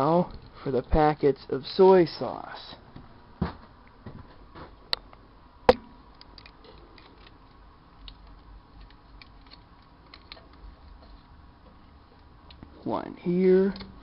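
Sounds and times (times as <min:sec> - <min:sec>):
sharp knocks: 0:05.7 - 0:06.0.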